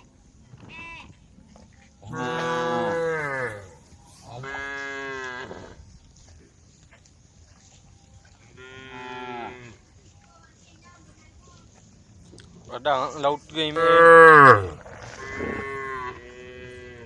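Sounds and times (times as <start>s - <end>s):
cattle mooing: 2.1s - 3.8s, 13.8s - 16.2s.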